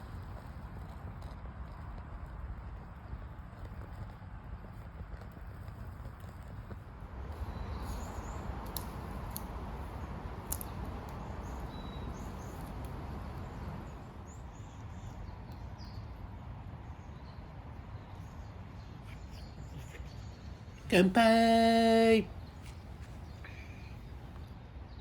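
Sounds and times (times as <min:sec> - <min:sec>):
steady outdoor background rush: 0:07.0 - 0:15.2
small birds chirping: 0:07.3 - 0:16.2, 0:18.0 - 0:24.5.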